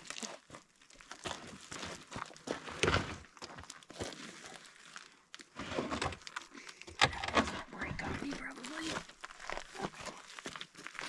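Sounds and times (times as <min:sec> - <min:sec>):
footsteps: 0:05.6 - 0:11.0.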